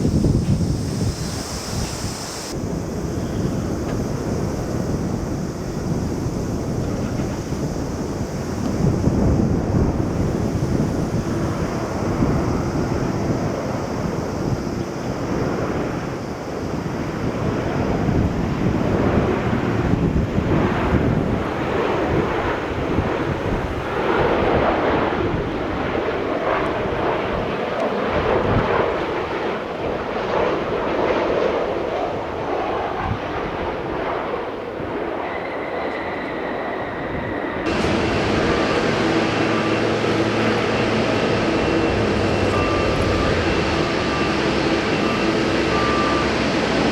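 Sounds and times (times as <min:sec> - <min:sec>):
high turbine whine: 0:00.0 - 0:46.9
jet engines rumbling: 0:00.0 - 0:46.9
steady jet noise with tones: 0:00.0 - 0:46.9.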